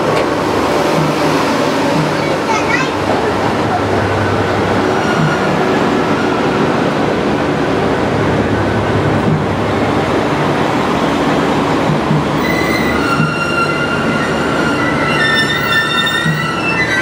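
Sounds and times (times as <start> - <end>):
train rolling past: 0.0 - 17.0
high squeal: 12.4 - 17.0.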